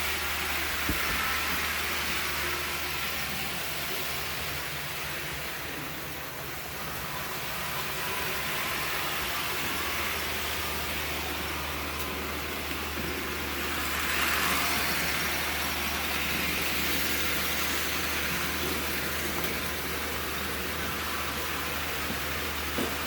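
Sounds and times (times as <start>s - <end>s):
model train motor whir: 0.0s - 23.0s
wheel and rail noise: 0.0s - 23.0s.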